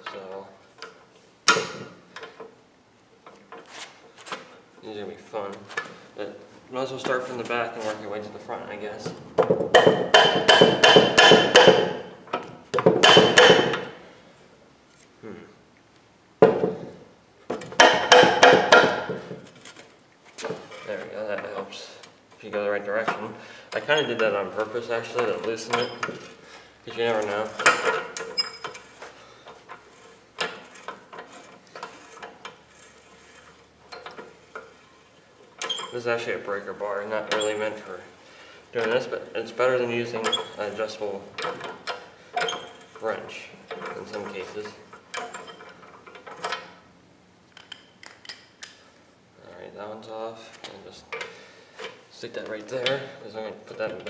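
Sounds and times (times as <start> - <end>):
breaker bar loosening a nut: 27.2 - 36.0.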